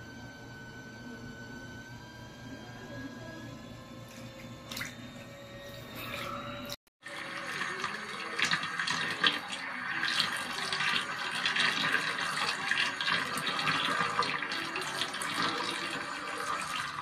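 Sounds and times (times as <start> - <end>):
water splashing in a basin: 4.2 - 5.0, 7.0 - 17.0.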